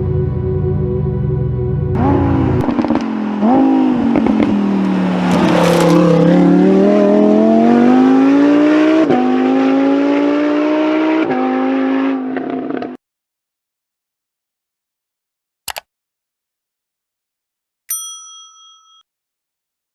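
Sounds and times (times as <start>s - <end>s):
car accelerating hard: 2.0s - 13.0s
sports car engine revving: 2.0s - 13.0s.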